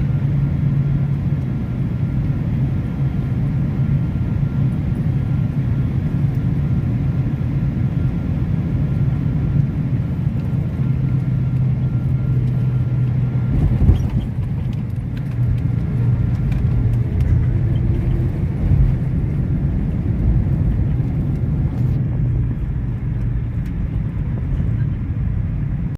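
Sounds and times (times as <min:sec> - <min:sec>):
airliner rumble: 0:00.0 - 0:25.9.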